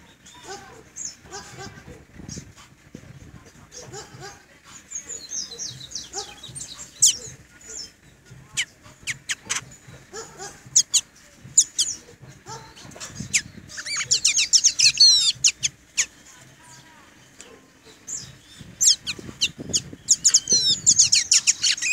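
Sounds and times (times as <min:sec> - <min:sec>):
bird whistles and chirps: 0:04.9 - 0:08.0, 0:12.7 - 0:16.1, 0:18.0 - 0:21.9.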